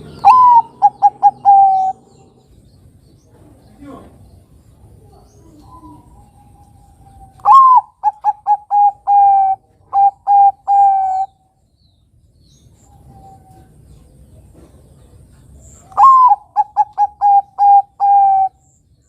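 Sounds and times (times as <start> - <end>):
dove cooing: 0.0 - 2.6, 4.9 - 11.4, 15.8 - 18.7.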